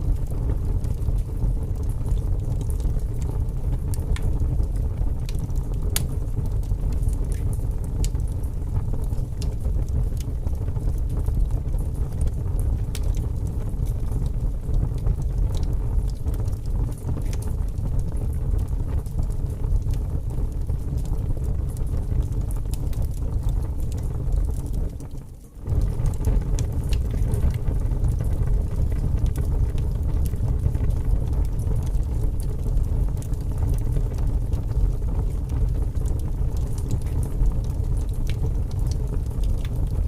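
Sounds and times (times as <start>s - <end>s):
fire crackling and popping: 0.0s - 40.0s
fireplace fire rumbling: 0.0s - 40.0s.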